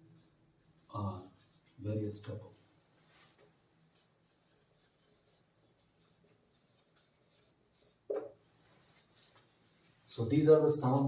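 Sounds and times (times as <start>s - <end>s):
pen scratching on paper: 3.9s - 8.3s.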